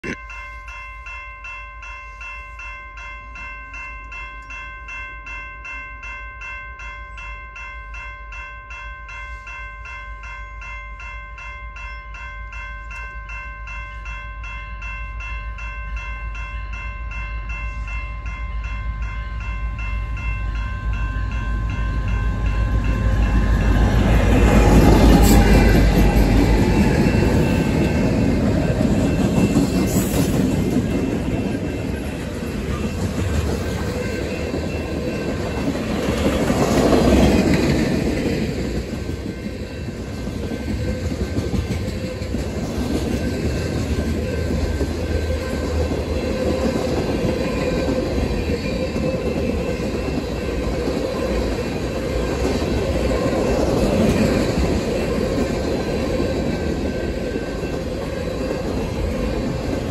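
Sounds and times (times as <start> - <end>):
railroad crossing bell ringing: 0.0 - 59.9
diesel locomotive rumble: 21.6 - 59.9.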